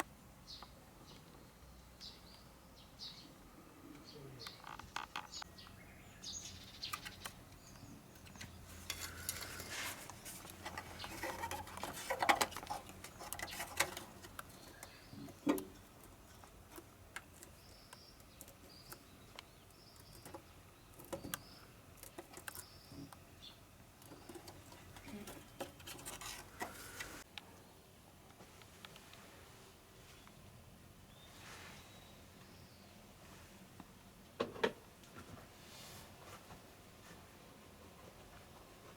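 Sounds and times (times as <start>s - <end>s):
bird chirping: 0.4s - 26.2s.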